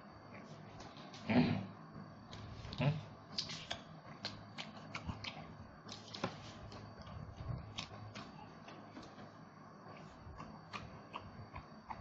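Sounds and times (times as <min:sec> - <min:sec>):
chewing with crunches: 0:02.6 - 0:09.3, 0:09.9 - 0:12.0.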